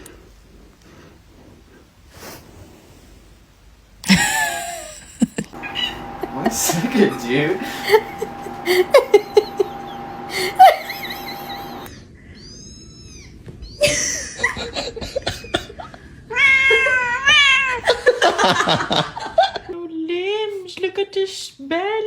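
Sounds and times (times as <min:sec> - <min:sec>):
cat meowing: 0:16.3 - 0:17.8.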